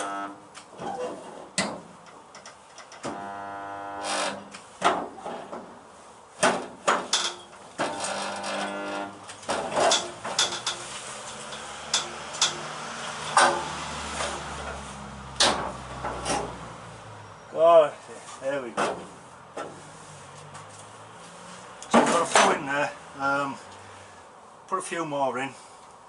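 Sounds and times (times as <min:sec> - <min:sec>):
welder buzzing: 0:00.0 - 0:00.4, 0:03.0 - 0:04.6, 0:07.8 - 0:09.3
metallic clicks and knocks: 0:09.4 - 0:12.7.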